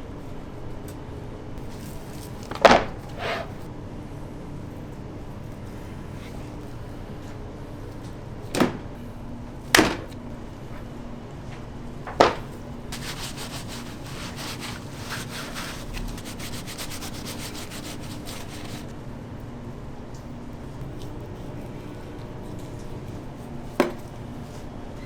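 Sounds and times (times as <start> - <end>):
rubbing and scraping strokes: 12.9 - 18.9.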